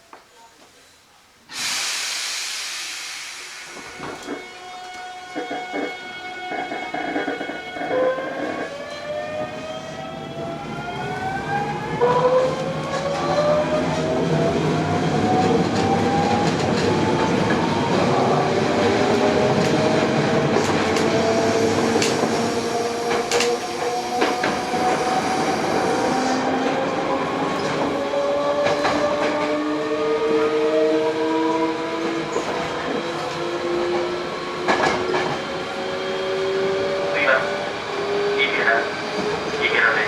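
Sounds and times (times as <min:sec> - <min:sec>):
rail joint clicks: 0:03.7 - 0:09.1, 0:19.1 - 0:25.2
wheels rumbling on rail: 0:03.8 - 0:40.0.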